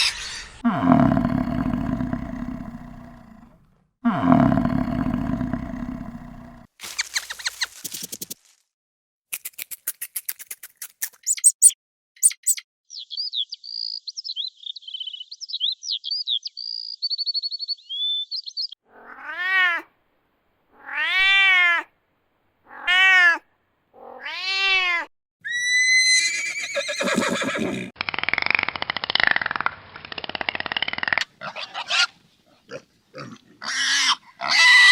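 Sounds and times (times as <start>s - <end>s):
high quick chirping: 6.8s - 8.4s, 10.8s - 12.6s
cat meowing: 18.9s - 19.8s.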